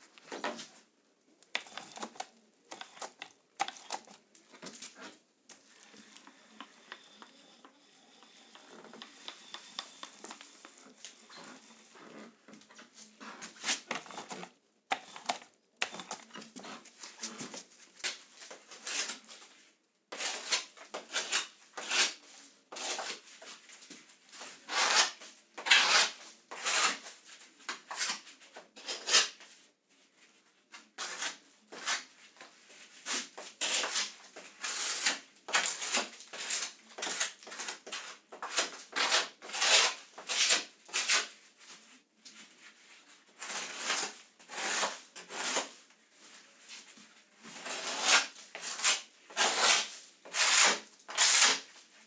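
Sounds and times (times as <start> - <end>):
wall being sanded by hand: 47.6 - 51.7.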